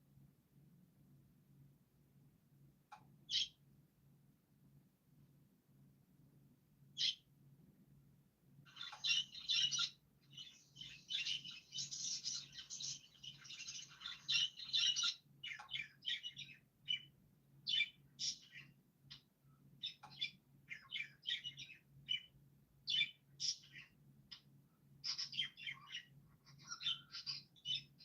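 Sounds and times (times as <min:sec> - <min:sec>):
faint low hum: 0:00.0 - 0:28.0
birds chirping and twittering: 0:02.9 - 0:03.6, 0:07.0 - 0:07.3, 0:08.7 - 0:28.0.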